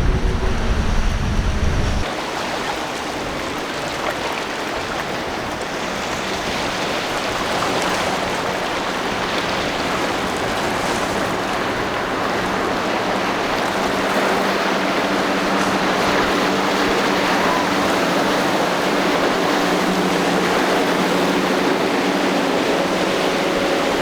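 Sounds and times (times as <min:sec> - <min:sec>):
boat engine humming: 0:00.0 - 0:02.0, 0:09.2 - 0:24.0
waves and churning water: 0:00.0 - 0:24.0.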